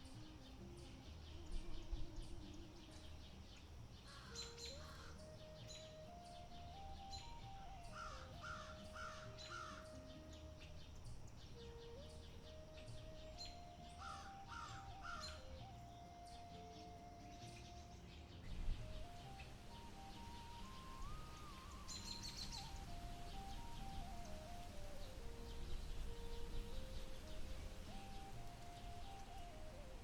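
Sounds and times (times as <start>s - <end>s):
faint bird chirps: 0.0s - 30.0s
slow soft melody of held notes: 0.0s - 30.0s
crow cawing: 4.0s - 5.3s, 7.9s - 9.9s, 14.0s - 15.4s.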